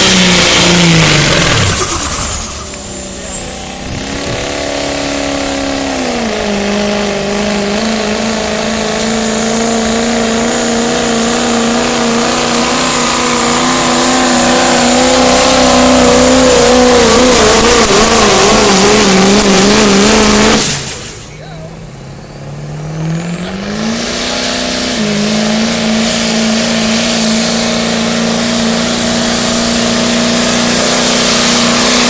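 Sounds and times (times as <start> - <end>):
truck engine running at high revs: 0.0 - 32.0.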